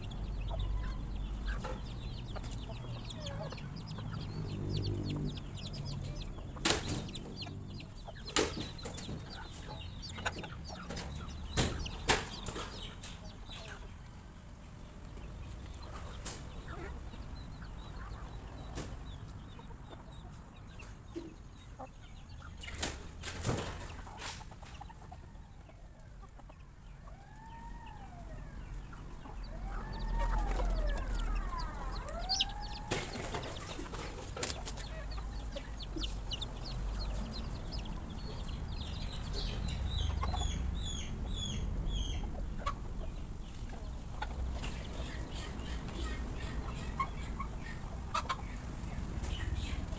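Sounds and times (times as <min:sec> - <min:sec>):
chickens clucking: 0:00.0 - 0:49.9
rising-and-falling calls: 0:26.8 - 0:42.8.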